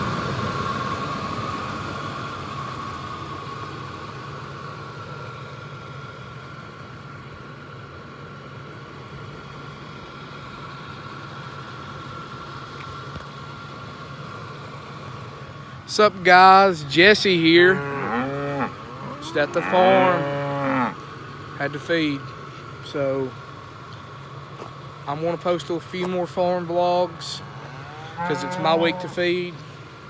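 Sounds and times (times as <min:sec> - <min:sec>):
engine-like hum: 0:00.0 - 0:30.0
constant whine: 0:13.5 - 0:30.0.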